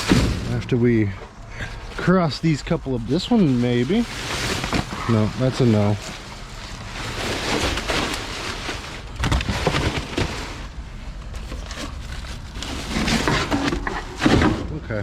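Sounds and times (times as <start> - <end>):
plastic bags and boxes rustling: 1.8 - 14.7
items knocking and clattering: 9.2 - 10.7, 11.3 - 14.8.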